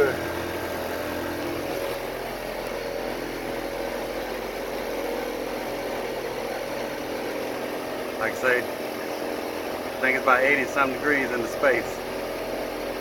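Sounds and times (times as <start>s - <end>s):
air conditioner unit humming: 0.0s - 13.0s.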